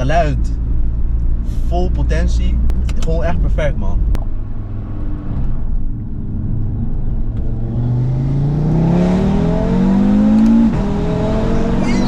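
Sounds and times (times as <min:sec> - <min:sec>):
car engine accelerating hard: 0:04.5 - 0:12.0.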